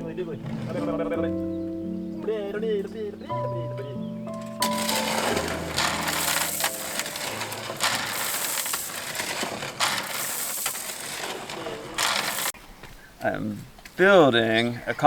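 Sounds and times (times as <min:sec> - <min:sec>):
gravel crunching and scraping: 0:04.2 - 0:13.0.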